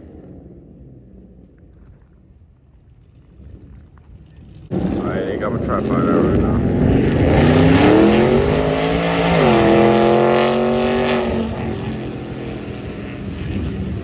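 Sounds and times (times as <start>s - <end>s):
car engine accelerating hard: 4.7s - 14.0s.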